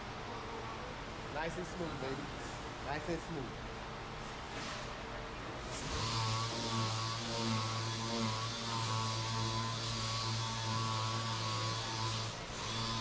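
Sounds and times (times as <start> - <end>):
electric power tool motor humming: 5.7 - 13.0.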